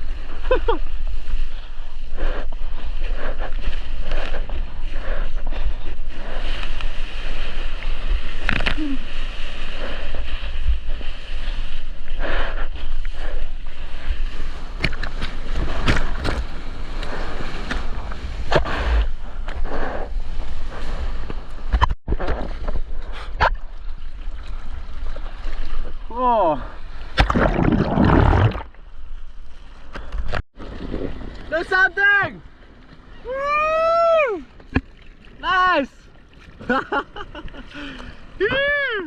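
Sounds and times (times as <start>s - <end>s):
water sloshing and splashing: 12.7s - 18.6s, 22.2s - 33.3s, 34.4s - 38.2s.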